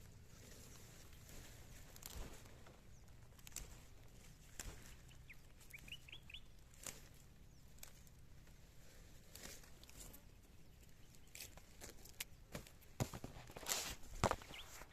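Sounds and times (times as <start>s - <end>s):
faint bird chirps: 4.3s - 6.6s.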